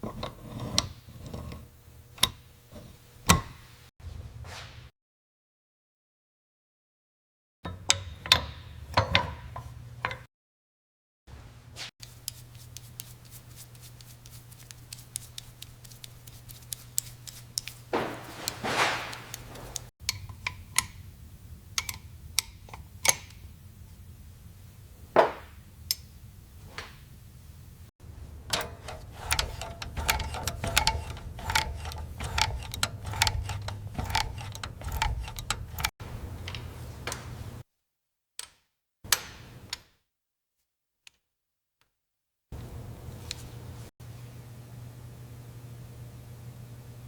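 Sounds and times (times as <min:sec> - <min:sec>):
clicks and taps on metal parts: 0:12.0 - 0:17.9, 0:28.5 - 0:36.0
sharp clicks and taps: 0:12.0 - 0:20.2
steady low hum: 0:27.7 - 0:36.4.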